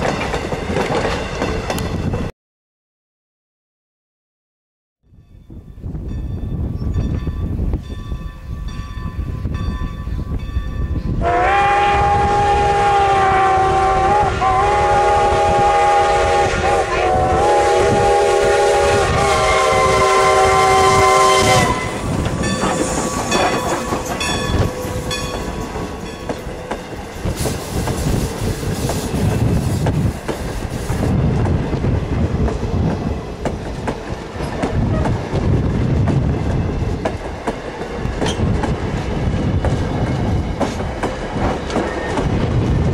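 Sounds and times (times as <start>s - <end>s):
steam train running past: 5.9s - 42.9s
steam locomotive whistle: 11.2s - 25.7s.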